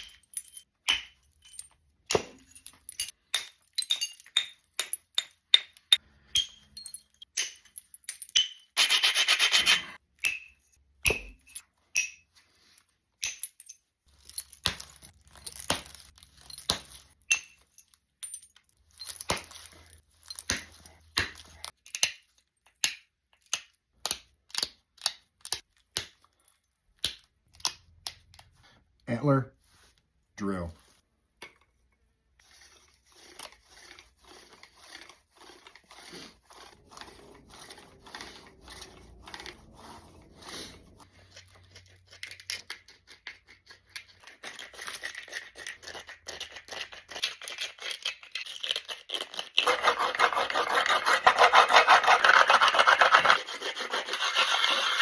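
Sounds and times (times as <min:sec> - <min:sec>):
stone scraping: 0:00.0 - 0:13.4, 0:32.4 - 0:47.2, 0:49.1 - 0:55.0.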